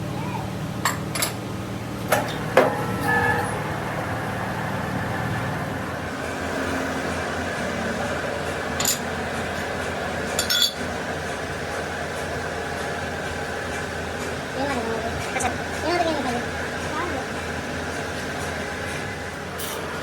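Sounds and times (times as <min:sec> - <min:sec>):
machine hum: 0:00.0 - 0:20.0
metal clinking against metal: 0:08.8 - 0:09.1, 0:10.4 - 0:10.8.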